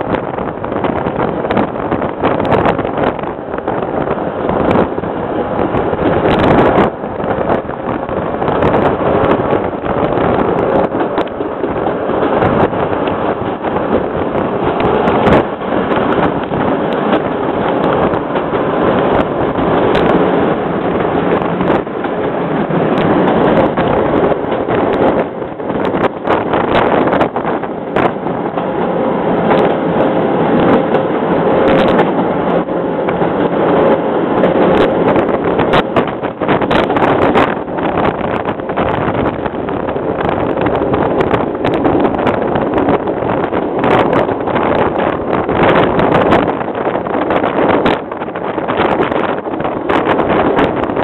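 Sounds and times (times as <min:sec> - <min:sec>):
train running noise: 0:00.0 - 0:51.0
wind on microphone: 0:00.0 - 0:51.0.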